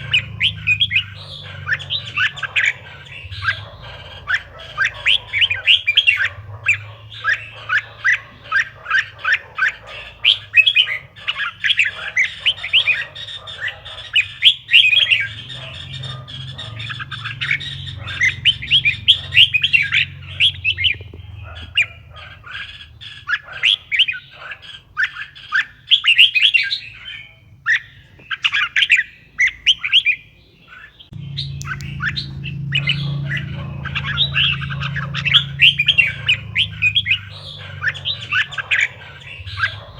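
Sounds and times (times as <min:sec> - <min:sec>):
bird singing: 0:00.0 - 0:39.9
low steady hum: 0:31.2 - 0:39.9.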